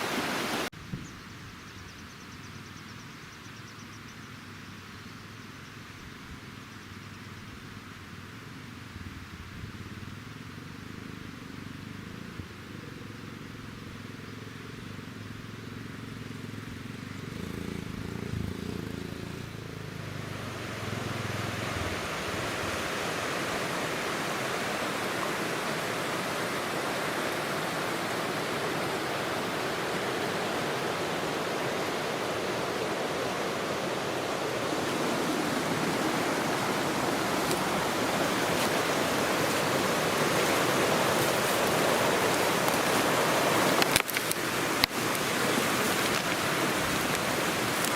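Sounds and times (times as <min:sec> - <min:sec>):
river water rushing over stones: 0:00.0 - 0:00.7, 0:19.4 - 0:47.9.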